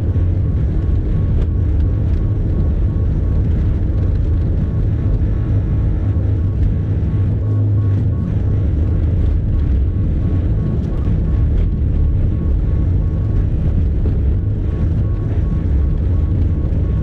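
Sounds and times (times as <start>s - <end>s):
pulsing high tone: 5.4s - 17.0s.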